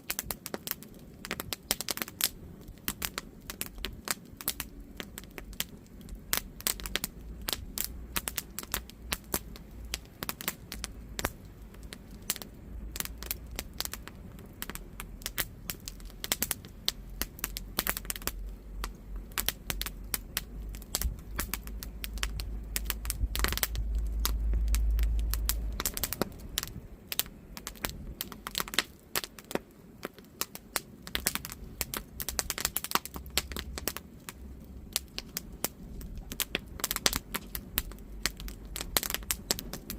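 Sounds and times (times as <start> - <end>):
campfire crackling: 0.0 - 39.9
low rumble: 4.7 - 28.2.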